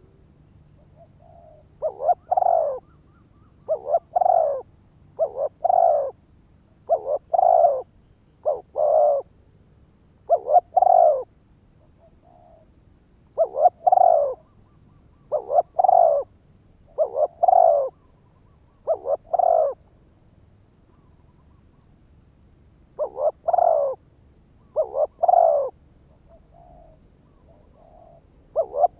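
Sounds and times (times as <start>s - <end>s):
dove cooing: 0.7s - 6.2s, 6.8s - 9.3s, 10.2s - 12.7s, 13.3s - 16.3s, 16.9s - 19.9s, 23.0s - 24.0s, 24.6s - 28.9s.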